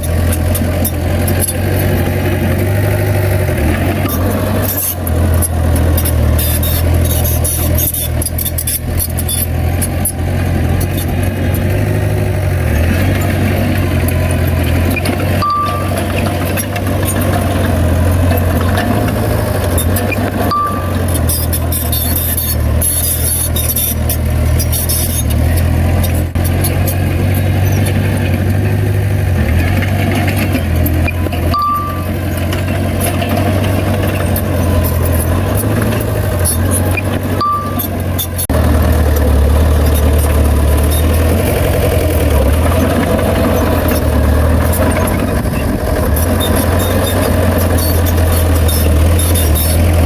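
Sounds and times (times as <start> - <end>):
heavy diesel engine running: 0.0 - 50.0
short high beep: 15.4 - 16.3, 20.4 - 23.9, 31.1 - 32.3, 37.0 - 38.4.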